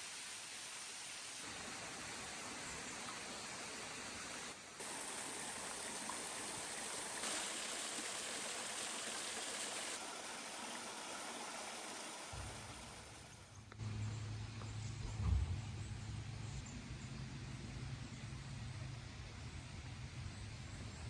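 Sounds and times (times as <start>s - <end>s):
stream water rushing: 0.0s - 13.6s.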